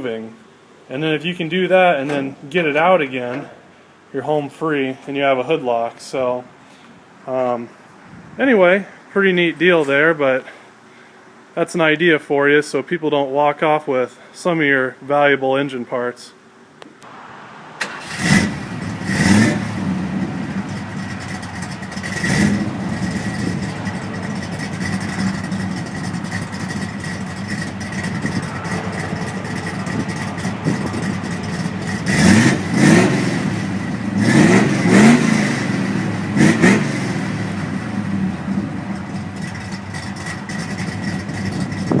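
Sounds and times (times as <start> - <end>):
car engine idling and revving: 17.0 - 42.0.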